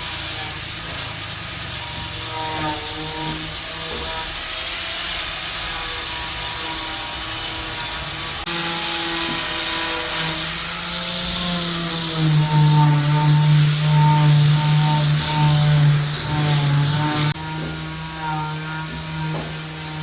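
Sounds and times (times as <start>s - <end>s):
power tool motor whine: 5.1s - 20.0s.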